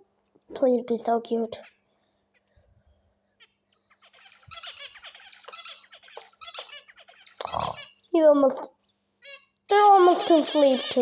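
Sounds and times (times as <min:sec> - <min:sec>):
quail squeaky chirps: 0:03.4 - 0:11.0.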